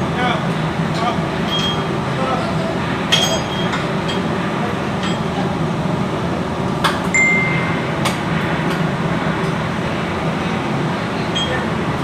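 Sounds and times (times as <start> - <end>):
steady low hum: 0.0 - 12.0
short ringing ping: 7.2 - 7.8.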